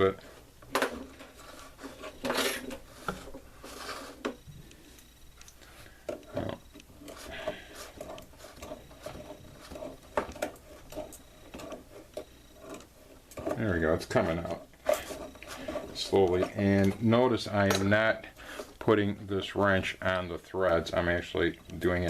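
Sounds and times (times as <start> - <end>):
metal scraping and rubbing: 0.0 - 4.5, 6.2 - 17.9.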